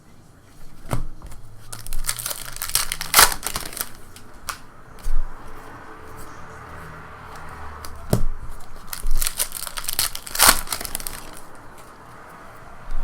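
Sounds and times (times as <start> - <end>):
wrapper crinkling and tearing: 1.6 - 5.1, 8.6 - 11.9.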